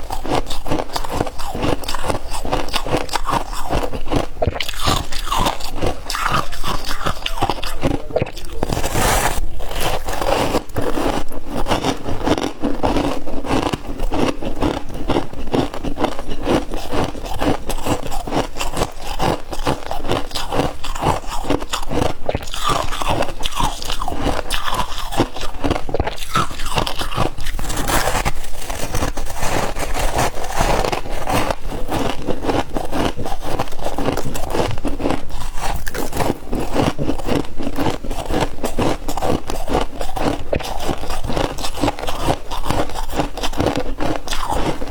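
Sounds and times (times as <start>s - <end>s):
chewing crunchy ice: 0.0s - 44.9s
scraping: 8.6s - 10.2s.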